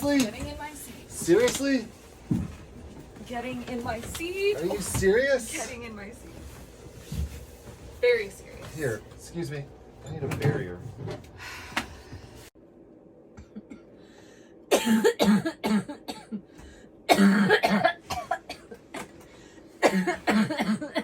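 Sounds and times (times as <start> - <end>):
person coughing: 14.7 - 16.5, 17.1 - 19.1, 19.8 - 21.0.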